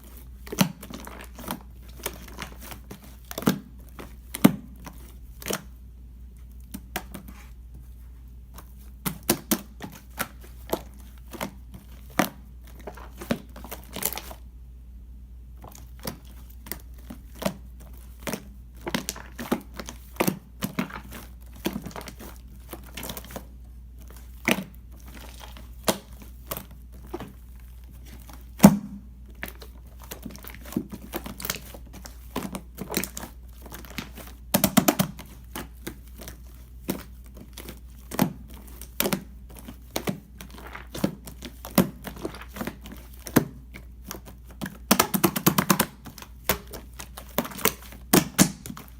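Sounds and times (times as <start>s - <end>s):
slime popping and crackling: 15.7s - 48.9s.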